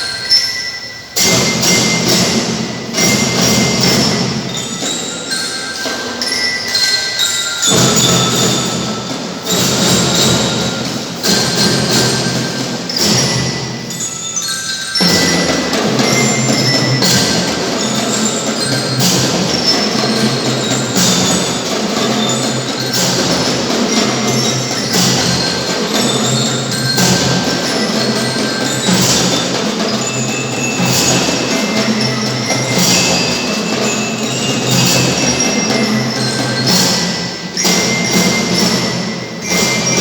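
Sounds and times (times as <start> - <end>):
marching band with drums and bells: 0.0 - 40.0.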